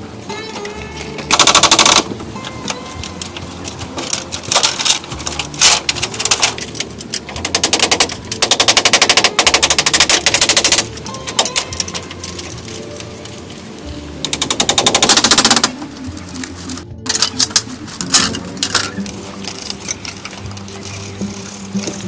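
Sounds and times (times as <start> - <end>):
rapid tapping bursts: 1.3 - 2.1, 5.5 - 12.1, 14.2 - 15.8.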